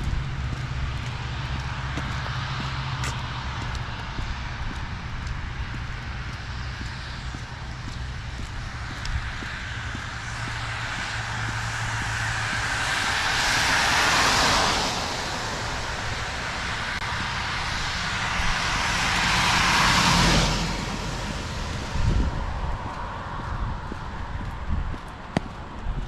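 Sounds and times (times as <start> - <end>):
car tyres hissing on wet road: 9.5 - 21.9.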